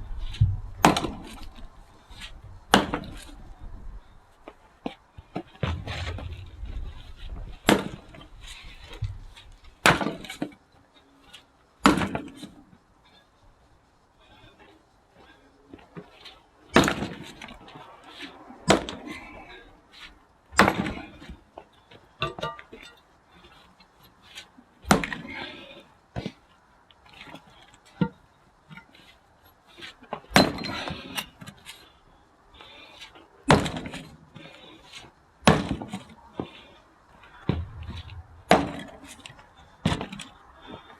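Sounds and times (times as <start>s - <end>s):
axe strikes splitting firewood: 0.8s - 1.5s, 2.7s - 3.3s, 7.6s - 8.2s, 9.8s - 10.5s, 11.8s - 12.4s, 16.8s - 17.4s, 18.7s - 19.1s, 20.6s - 21.1s, 24.9s - 25.3s, 30.4s - 31.2s, 33.5s - 34.1s, 35.4s - 36.1s, 37.5s - 40.2s.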